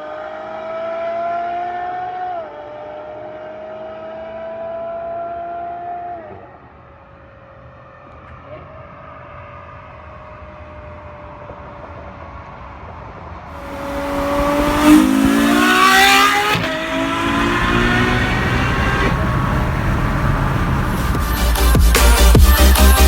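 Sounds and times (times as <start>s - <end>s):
car accelerating: 13.6s - 23.0s.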